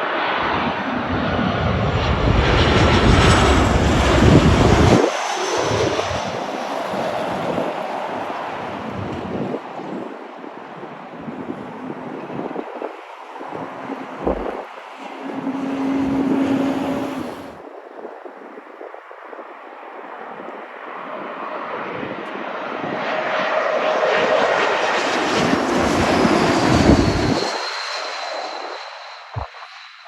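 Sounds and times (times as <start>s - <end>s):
jet airliner engines passing: 0.0s - 30.0s
high whine sliding down: 12.2s - 17.6s.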